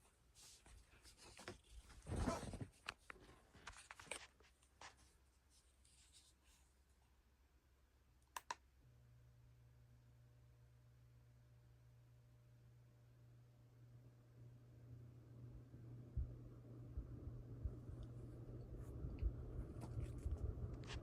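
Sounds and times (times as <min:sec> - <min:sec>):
low steady hum: 0:00.0 - 0:21.0
faint clicks: 0:08.2 - 0:08.6.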